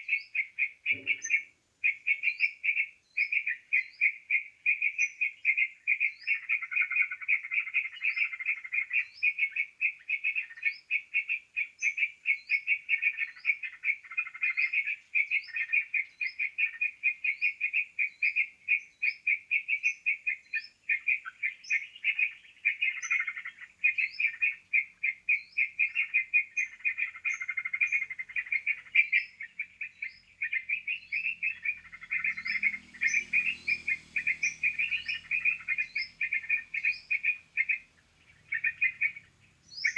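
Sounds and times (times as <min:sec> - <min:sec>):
birds chattering: 0:00.0 - 0:39.9
high falling bird notes: 0:00.9 - 0:01.5.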